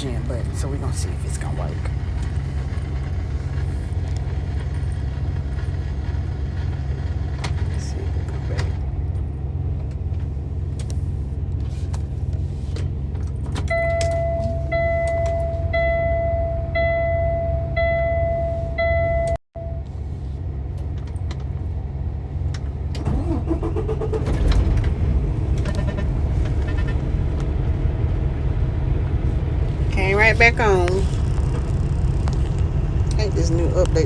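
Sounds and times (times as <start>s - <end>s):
diesel engine cranking and restarting: 0.0s - 34.0s
low engine rumble: 0.0s - 34.0s
dashboard warning chime beeps: 13.7s - 20.0s.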